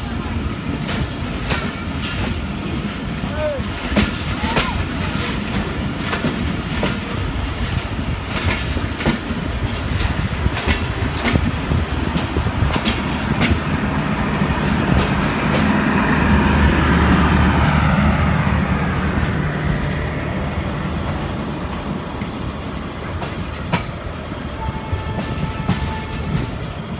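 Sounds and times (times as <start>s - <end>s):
wheels clicking over rail joints: 0.0s - 15.9s, 19.0s - 26.9s
train coaches rumbling on rails: 0.0s - 26.9s
low engine hum: 13.8s - 23.1s.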